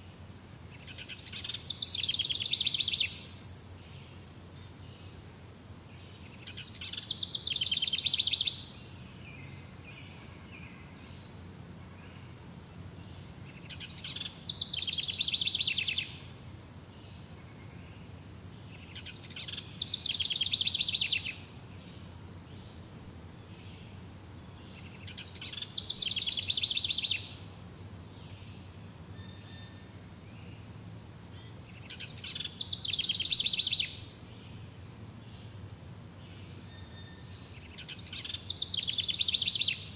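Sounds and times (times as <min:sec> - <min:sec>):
songbird trilling: 0:00.4 - 0:03.3, 0:06.3 - 0:08.8, 0:13.6 - 0:16.9, 0:17.7 - 0:21.7, 0:24.6 - 0:29.8, 0:31.2 - 0:34.2, 0:36.4 - 0:39.9.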